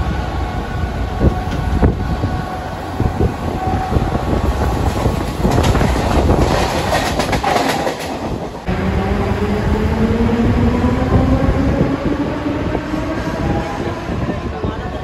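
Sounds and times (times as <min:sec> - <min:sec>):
electric train wheels clattering: 0:03.1 - 0:12.8
rising whine: 0:08.7 - 0:14.2.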